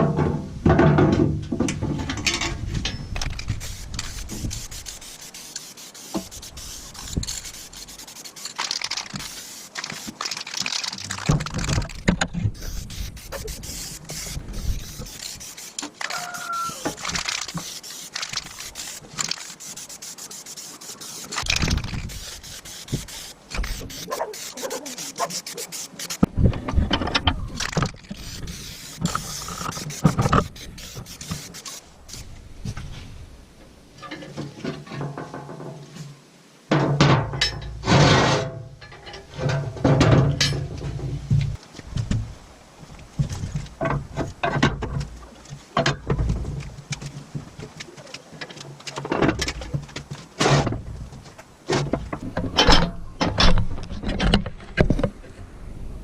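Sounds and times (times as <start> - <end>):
hand tool scraping metal: 2.1 - 26.3, 27.6 - 32.3
knocks and clicks: 6.2 - 16.1.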